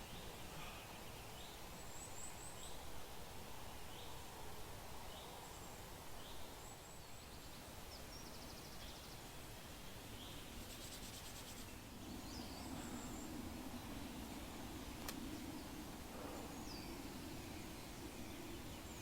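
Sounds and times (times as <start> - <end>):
steady low hiss: 0.0 - 19.0
small birds chirping: 5.1 - 19.0.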